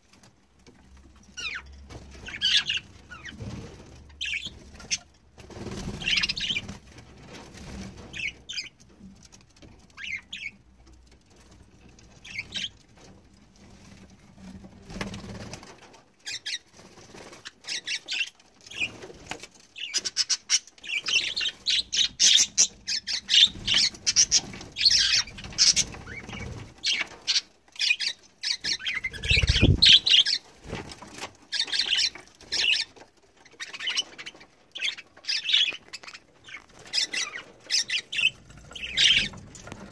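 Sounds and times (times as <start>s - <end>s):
budgerigars chattering: 19.8s - 30.4s, 34.8s - 39.4s
wings fluttering: 28.7s - 32.0s.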